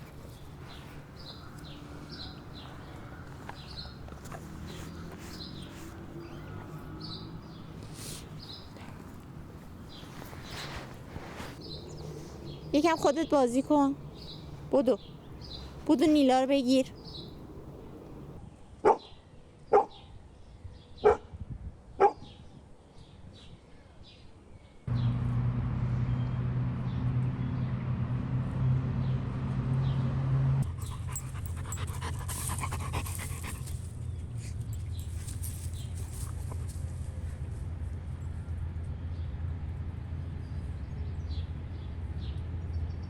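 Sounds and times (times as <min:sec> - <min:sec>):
dog barking: 0:17.2 - 0:19.1, 0:19.7 - 0:20.0, 0:21.0 - 0:21.3, 0:22.0 - 0:22.3
steady low drone: 0:24.9 - 0:30.8.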